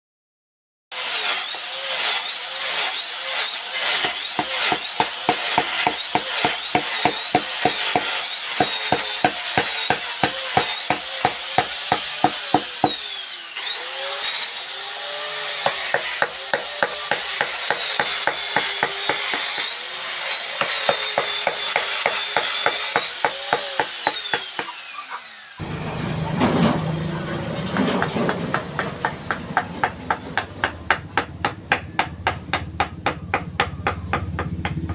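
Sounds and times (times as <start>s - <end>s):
power carving tool whine: 0.9s - 26.1s
chisel struck with mallet: 4.0s - 13.0s, 28.3s - 34.9s.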